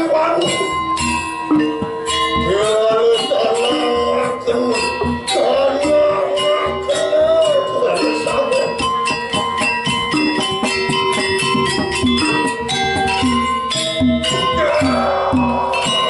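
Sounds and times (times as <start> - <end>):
gamelan metal percussion: 0.0 - 16.0.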